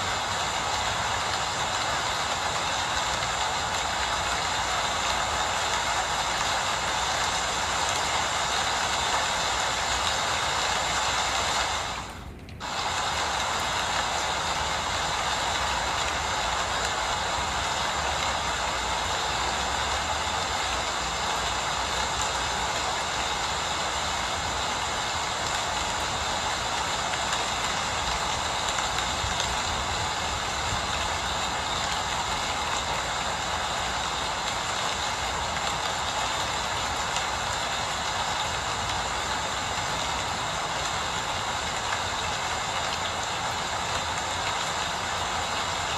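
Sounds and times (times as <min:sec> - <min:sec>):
rain falling: 0:00.0 - 0:45.9.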